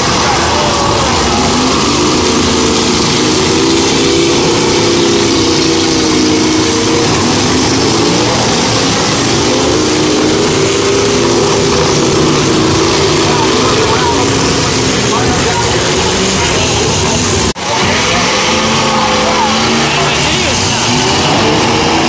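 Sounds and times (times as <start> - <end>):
car engines revving loudly: 0.0 - 22.0.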